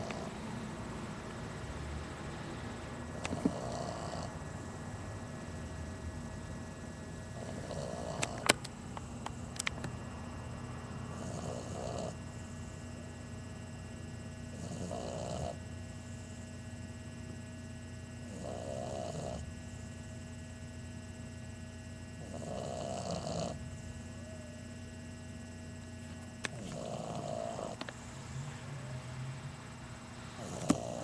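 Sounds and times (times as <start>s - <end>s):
puppy snoring: 0.0s - 0.6s, 3.1s - 4.5s, 7.3s - 8.6s, 11.0s - 12.9s, 14.5s - 15.6s, 18.2s - 19.5s, 22.2s - 24.5s, 26.4s - 29.3s, 30.1s - 31.0s.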